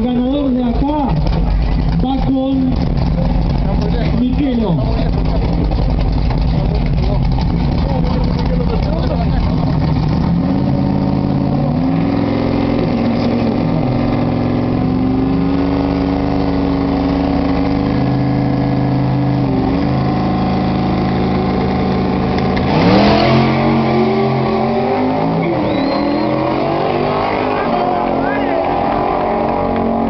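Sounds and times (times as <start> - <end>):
race car engines revving: 0.0 - 30.0.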